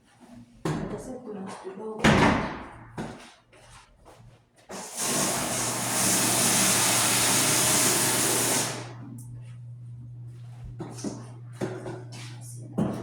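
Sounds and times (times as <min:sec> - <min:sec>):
loud rushing hiss: 0:04.8 - 0:08.9
steady low motor hum: 0:05.8 - 0:13.0.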